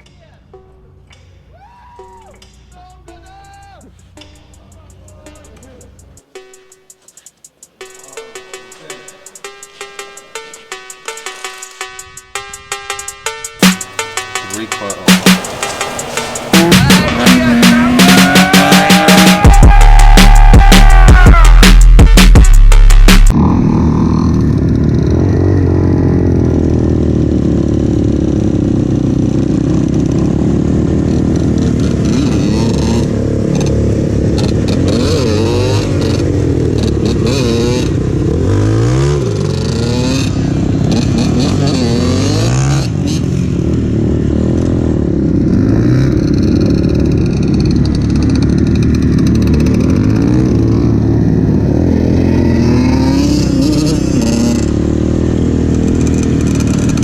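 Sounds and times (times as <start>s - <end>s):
motorbike engine revving: 12.9s - 57.0s.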